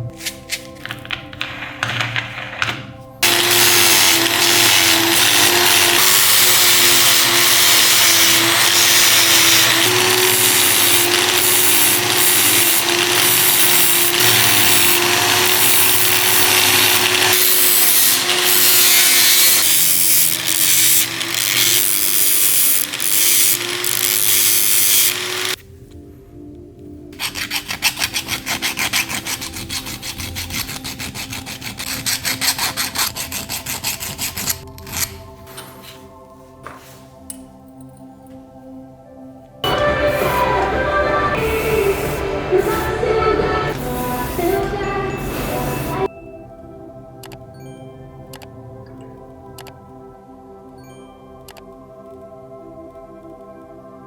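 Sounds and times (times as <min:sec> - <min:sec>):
hand filing strokes: 0:03.2 - 0:25.6, 0:27.2 - 0:35.1
power tool humming: 0:03.2 - 0:25.6, 0:39.6 - 0:46.1.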